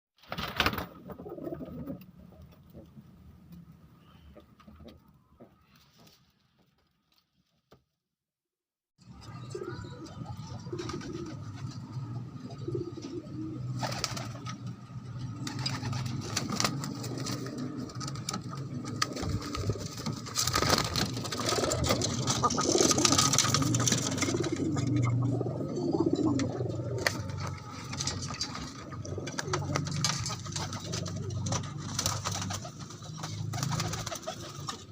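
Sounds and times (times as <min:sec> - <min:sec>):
doves cooing: 0:01.0 - 0:02.8, 0:09.2 - 0:34.9.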